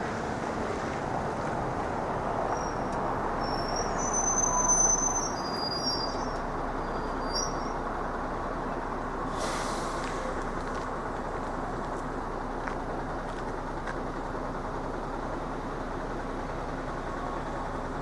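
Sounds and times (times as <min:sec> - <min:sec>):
train running over crossing: 0:00.0 - 0:18.0
high-pitched train squeals: 0:02.5 - 0:07.8.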